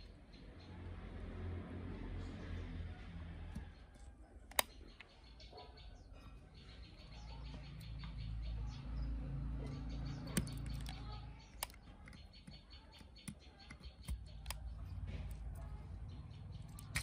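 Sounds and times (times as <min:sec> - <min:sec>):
small parts clicking and tapping: 0:03.5 - 0:05.2, 0:09.2 - 0:17.0.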